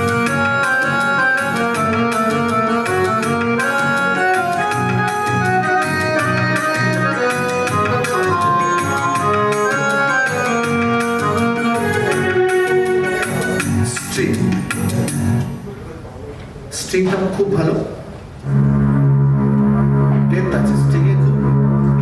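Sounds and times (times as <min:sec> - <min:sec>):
keyboard playing organ-like melody: 0:00.0 - 0:15.6, 0:18.4 - 0:22.0
keyboard rhythm accompaniment: 0:00.0 - 0:15.8.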